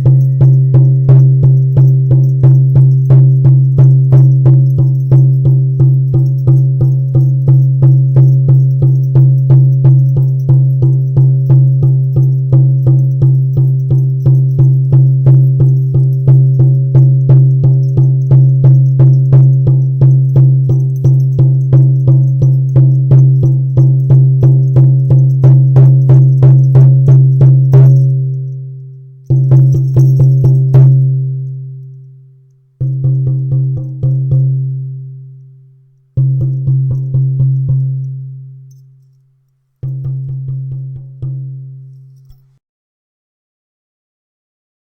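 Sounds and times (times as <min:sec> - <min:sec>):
frame drum booming: 0:00.0 - 0:22.6.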